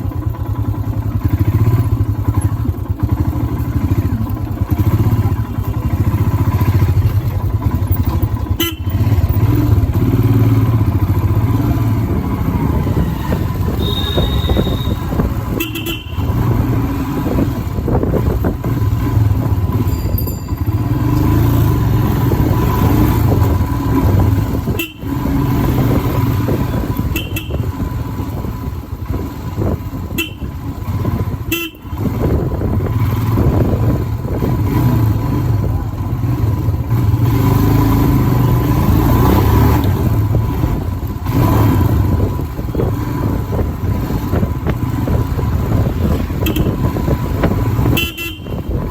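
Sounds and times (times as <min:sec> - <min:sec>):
motorcycle engine running: 0:00.0 - 0:48.9
horn toots: 0:08.4 - 0:09.7, 0:13.2 - 0:17.4, 0:24.6 - 0:27.9, 0:30.0 - 0:30.7, 0:31.4 - 0:32.3, 0:46.2 - 0:48.9
wind on microphone: 0:41.9 - 0:48.9.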